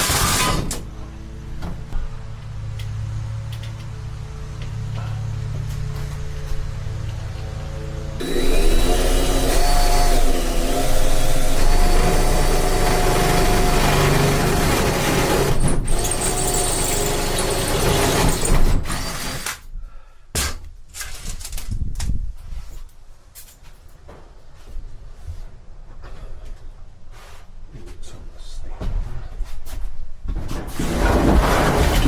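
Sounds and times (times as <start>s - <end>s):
power tool running: 0.0s - 0.8s, 8.2s - 19.6s.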